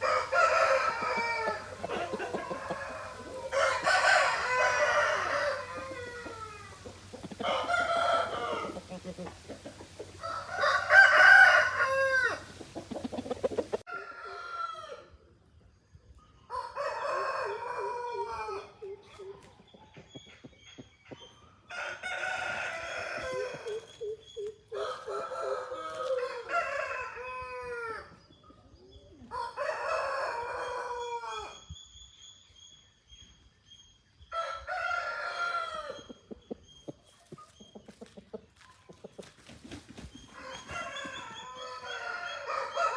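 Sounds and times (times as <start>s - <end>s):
roosters crowing: 0.0s - 15.2s, 16.5s - 18.8s, 21.7s - 24.1s, 24.7s - 28.2s, 29.2s - 31.7s, 34.3s - 36.1s, 40.1s - 42.9s.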